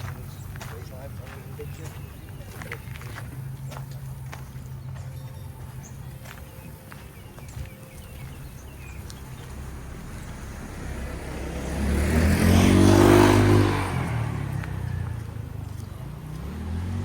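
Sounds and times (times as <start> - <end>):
motor vehicle passing by: 0.0 - 17.0.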